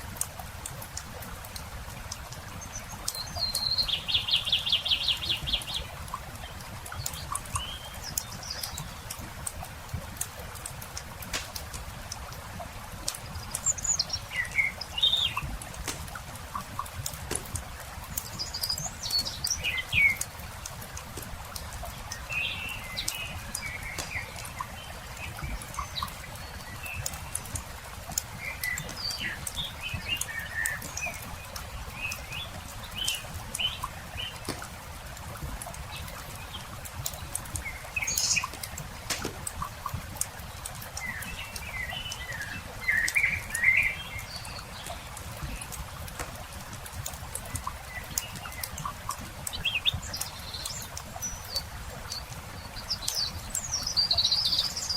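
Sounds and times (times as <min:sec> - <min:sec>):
small birds chirping: 0:00.7 - 0:54.9
campfire crackling and popping: 0:05.3 - 0:53.7.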